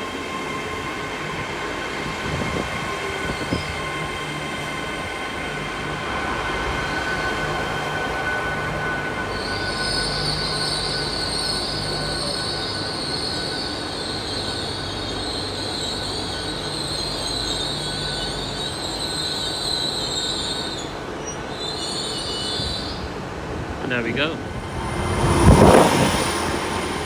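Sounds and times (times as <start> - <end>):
train wheels squealing: 0.0 - 23.6, 24.5 - 27.0
low train rumble: 0.0 - 27.0.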